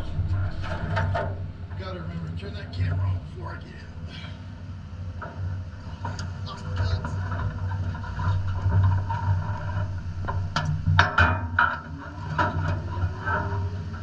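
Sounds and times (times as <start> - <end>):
steady low rumble: 0.0 - 14.0
knocks and rattles: 6.0 - 14.0.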